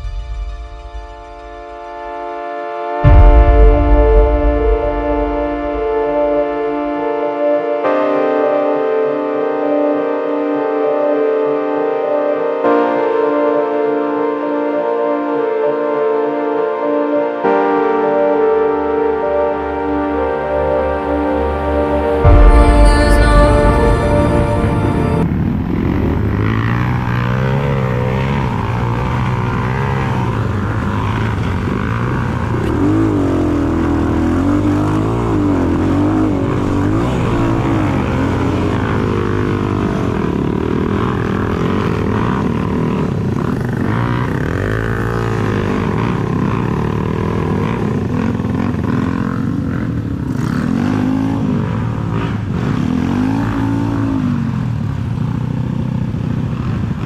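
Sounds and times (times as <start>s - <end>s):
dirt bike engine revving: 21.9s - 57.0s.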